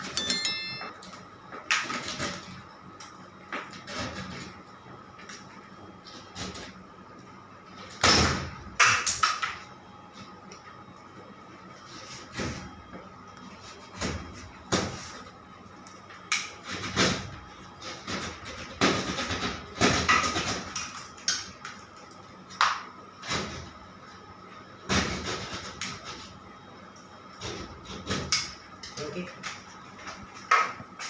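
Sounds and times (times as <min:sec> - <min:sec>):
faint high hum: 0:00.0 - 0:01.4.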